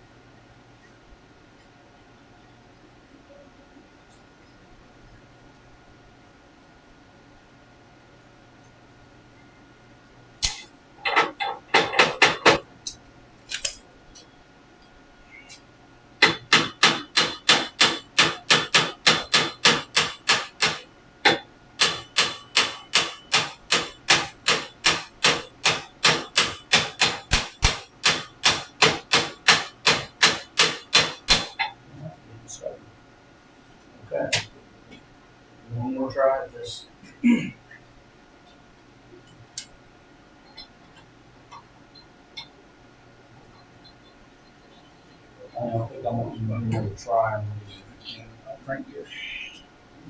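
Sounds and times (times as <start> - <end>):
hammer striking metal: 10.4 - 10.7, 16.2 - 31.7.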